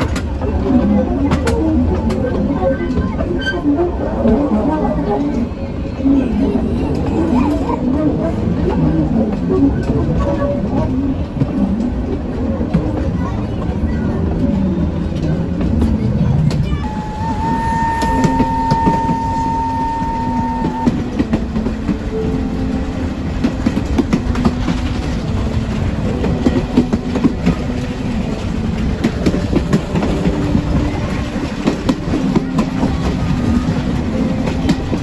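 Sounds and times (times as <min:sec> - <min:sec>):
train wheels clickety-clack: 0:00.0 - 0:35.0
steady high tone: 0:16.7 - 0:21.3.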